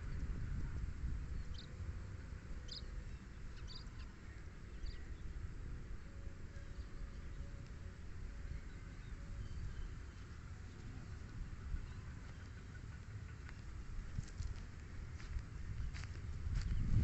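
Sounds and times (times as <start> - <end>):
wind rumble on microphone: 0.0 - 17.0
small bird chirping: 3.5 - 4.2.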